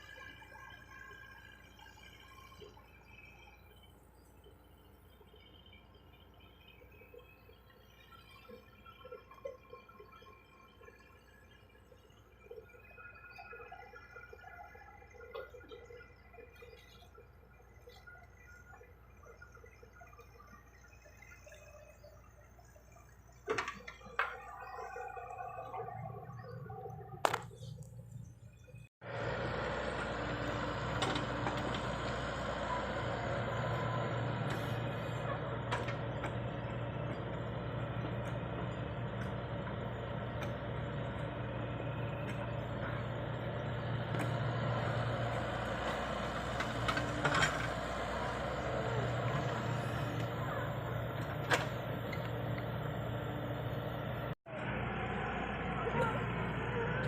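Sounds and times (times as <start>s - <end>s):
diesel engine running: 23.2s - 57.0s.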